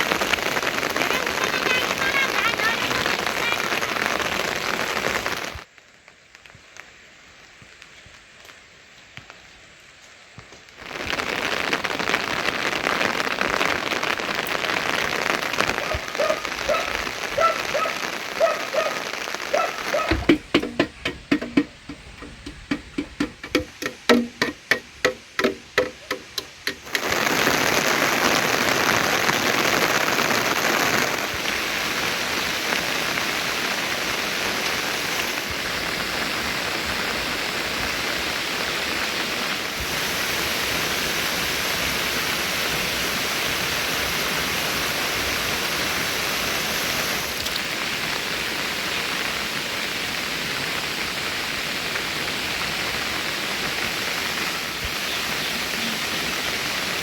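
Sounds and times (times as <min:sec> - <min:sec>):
heavy rain hissing: 0:00.0 - 0:05.7, 0:10.7 - 0:57.0
pitched wooden knocks: 0:20.0 - 0:27.2.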